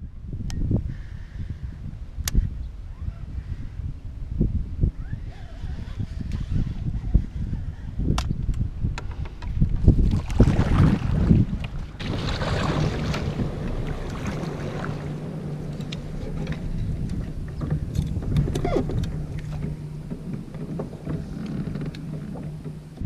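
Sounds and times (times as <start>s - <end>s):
clicks and knocks on a kayak: 8.1s - 10.4s
steady low hum: 9.6s - 23.0s.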